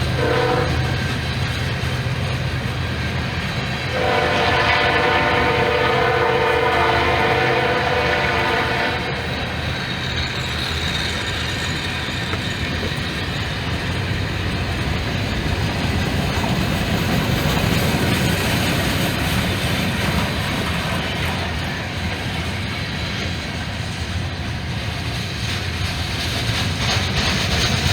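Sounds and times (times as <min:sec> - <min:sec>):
train rolling rumble: 0:00.0 - 0:27.9
train air horn chord: 0:00.2 - 0:01.0, 0:03.9 - 0:09.2.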